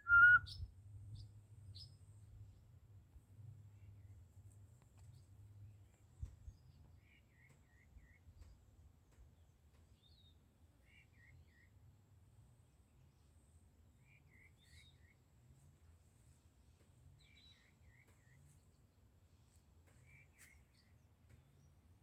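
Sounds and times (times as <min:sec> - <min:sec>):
bird singing faintly: 0:00.0 - 0:00.6.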